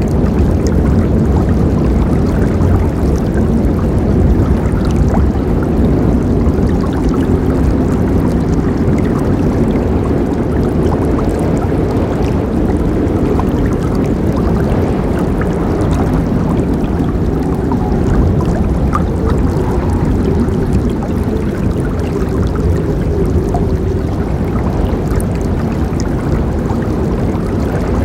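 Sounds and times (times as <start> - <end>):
small water splashes: 0.0 - 28.0
river water rushing: 10.5 - 28.0.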